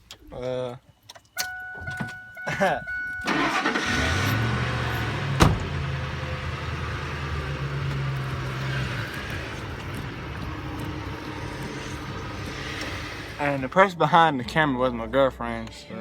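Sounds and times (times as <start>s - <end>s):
truck engine low hum: 2.6s - 13.8s
sharp thump: 5.4s - 5.8s.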